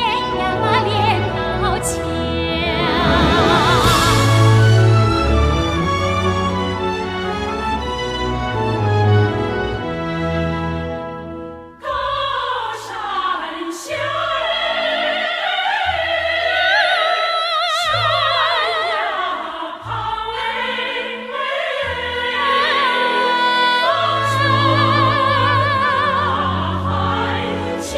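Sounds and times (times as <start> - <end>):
woman singing with vibrato: 0.0 - 4.5, 16.2 - 27.7
orchestral accompaniment: 0.0 - 12.4, 18.0 - 27.9.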